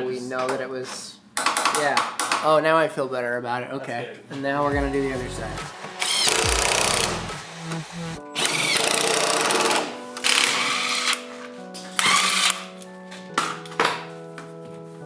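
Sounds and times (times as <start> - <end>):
background music with sustained notes: 4.6 - 15.0.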